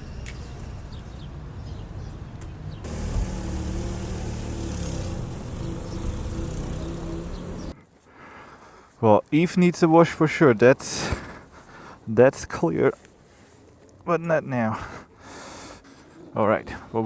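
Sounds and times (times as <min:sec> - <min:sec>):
motor vehicle drone: 0:02.7 - 0:07.8.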